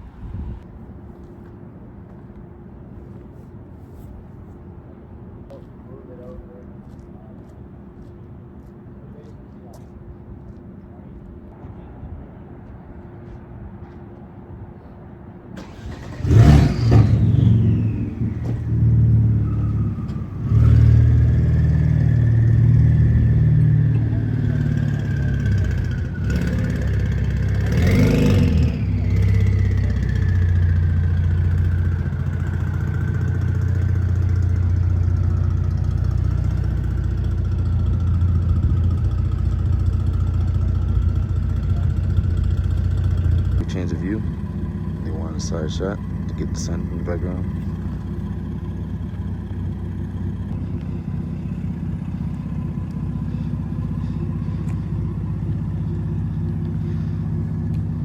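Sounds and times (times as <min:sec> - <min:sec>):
car engine starting and revving: 0:15.6 - 0:58.0.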